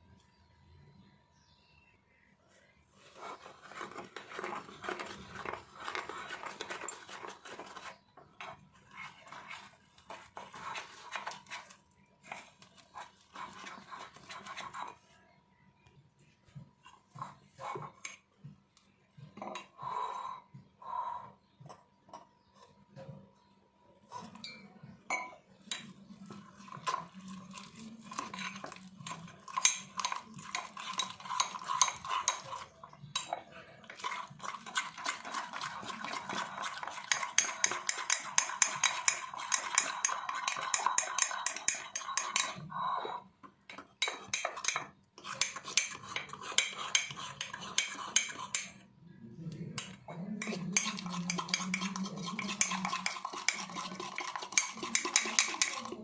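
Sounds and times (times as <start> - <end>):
metal spoon clinking in a mug: 24.4 - 26.0, 26.7 - 42.7, 43.7 - 48.8, 49.8 - 56.0.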